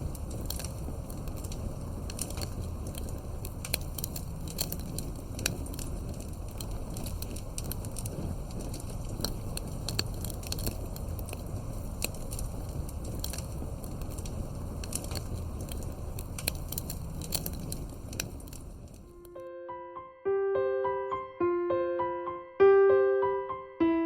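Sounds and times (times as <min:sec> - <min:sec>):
fireplace crackling: 0:00.0 - 0:19.5
soft electric piano notes: 0:19.1 - 0:24.0.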